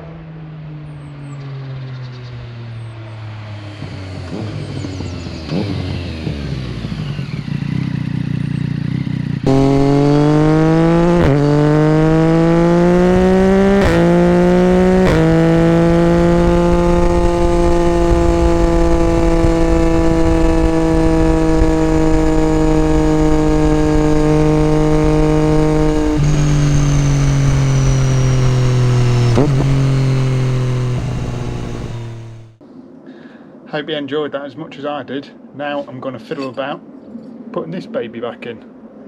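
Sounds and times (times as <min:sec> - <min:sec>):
motorcycle engine accelerating: 0:02.0 - 0:32.6.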